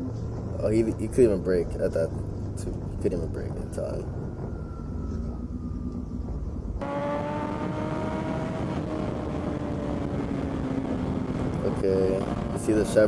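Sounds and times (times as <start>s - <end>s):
motorcycle engine revs dropping: 6.8s - 11.6s.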